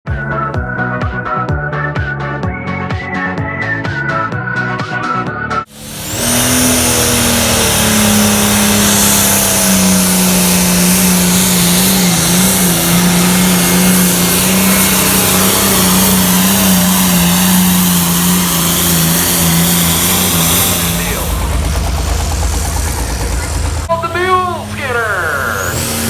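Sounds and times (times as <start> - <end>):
tractor engine at full throttle: 5.7 - 26.0.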